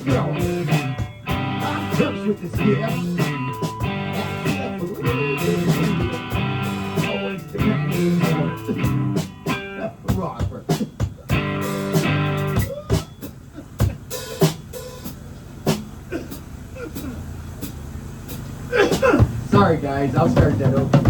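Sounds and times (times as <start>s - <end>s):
guitar strumming and picking: 0.0s - 13.1s.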